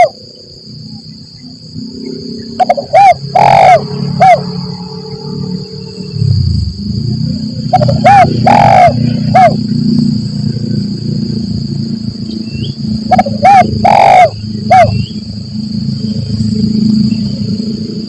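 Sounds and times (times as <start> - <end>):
dove cooing: 0.0 - 0.2, 2.4 - 4.6, 7.7 - 9.7, 13.0 - 15.1
steady high whine: 0.0 - 18.0
low rumble: 3.8 - 8.4.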